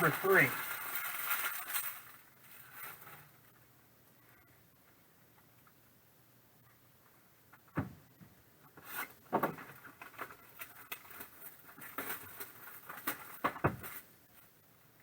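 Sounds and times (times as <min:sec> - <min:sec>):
wrappers crinkling and tearing: 0:00.0 - 0:03.3, 0:09.8 - 0:14.0.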